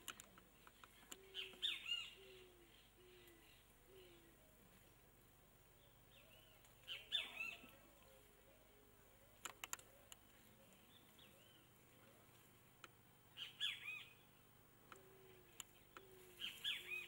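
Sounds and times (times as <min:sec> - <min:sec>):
sharp clicks: 0:00.0 - 0:01.3, 0:09.4 - 0:10.3
bird chirping: 0:00.0 - 0:04.6, 0:05.7 - 0:12.5, 0:13.3 - 0:17.0.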